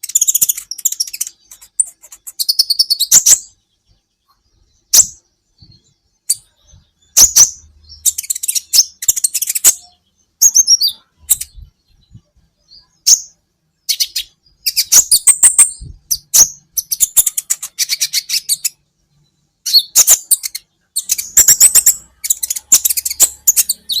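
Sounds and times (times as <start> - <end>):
sunbird chirps and trills: 0.0 - 24.0.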